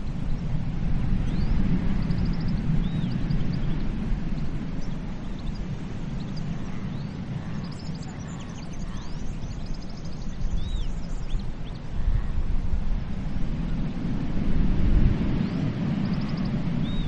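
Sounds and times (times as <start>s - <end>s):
flock of birds chirping: 0.0s - 17.0s
sea and wind rumble: 0.0s - 17.0s
whistled bird calls: 1.3s - 3.8s, 6.2s - 11.8s, 16.0s - 17.0s.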